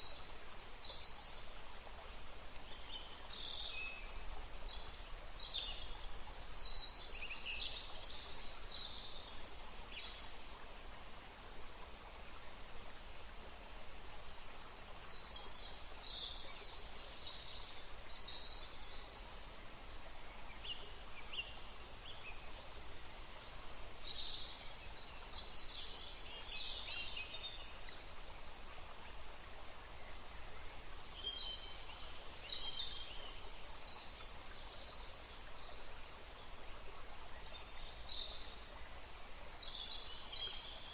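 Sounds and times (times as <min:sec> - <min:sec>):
soft background hiss: 0:00.0 - 0:40.9.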